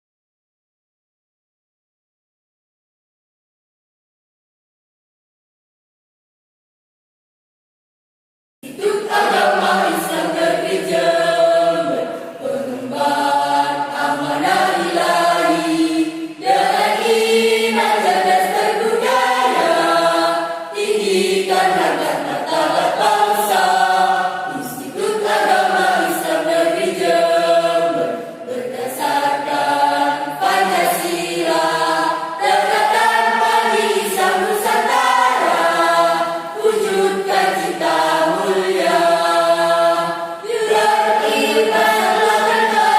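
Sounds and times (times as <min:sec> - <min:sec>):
choir singing: 0:08.6 - 0:42.9.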